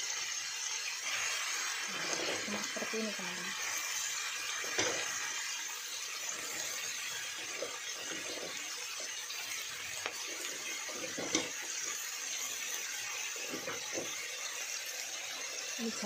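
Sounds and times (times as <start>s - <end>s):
cabbage sizzling in hot oil: 0.0s - 16.0s.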